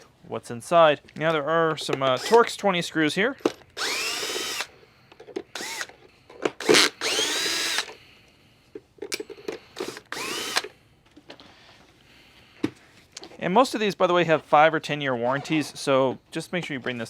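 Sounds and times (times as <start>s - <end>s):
power screwdriver whirring: 2.2s - 2.4s, 3.8s - 4.7s, 5.5s - 6.0s, 6.6s - 8.0s, 9.8s - 10.7s.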